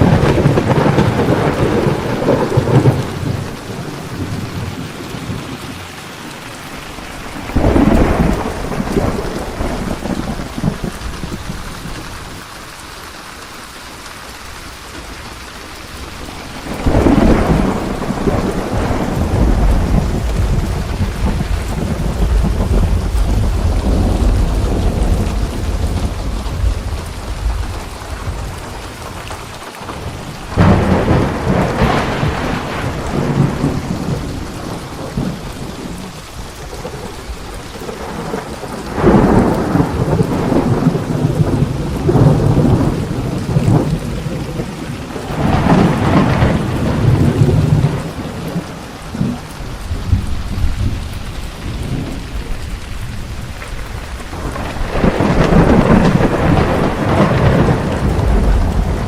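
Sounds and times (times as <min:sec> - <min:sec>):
thunderclaps rumbling: 0:00.0 - 0:12.5, 0:14.8 - 0:59.0
steady rain: 0:00.0 - 0:59.0.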